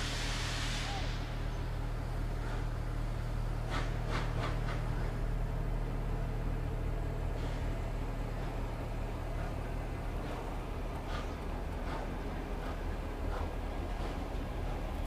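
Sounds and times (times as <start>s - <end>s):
short hissy bursts: 0.0s - 1.6s
train carriages rolling past: 0.0s - 15.0s.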